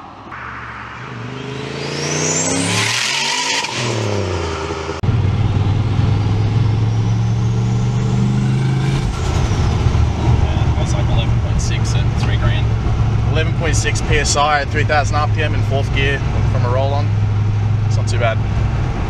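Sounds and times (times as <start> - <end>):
turbo whistle: 0.3 - 4.4
turbocharged engine accelerating: 0.3 - 19.0.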